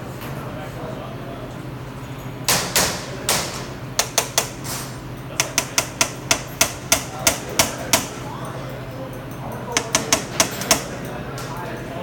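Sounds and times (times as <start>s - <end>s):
hand tools knocking and clicking: 2.5s - 8.6s, 9.3s - 11.7s
steady low hum: 3.1s - 12.0s.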